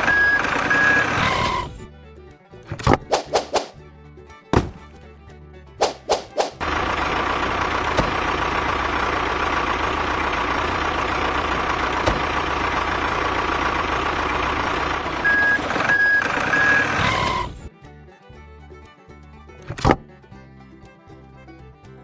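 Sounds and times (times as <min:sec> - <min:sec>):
short reversing beeps: 0:00.0 - 0:01.4, 0:15.2 - 0:17.4
truck engine running: 0:00.0 - 0:22.0.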